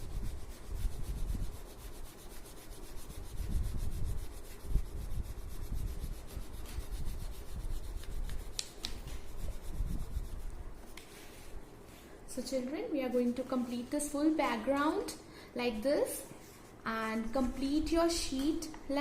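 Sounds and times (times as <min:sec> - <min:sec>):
crayon scrubbing on paper: 0:00.0 - 0:12.0.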